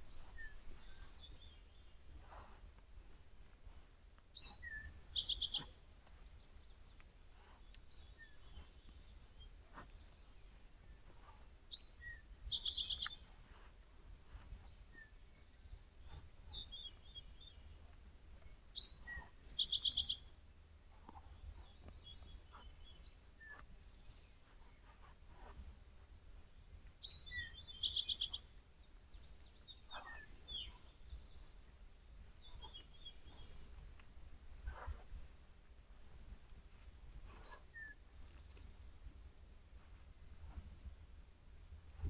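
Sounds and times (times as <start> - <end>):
songbird singing with trill: 0.0 - 2.2, 3.7 - 13.4, 14.6 - 24.9, 26.6 - 33.8, 37.3 - 38.9.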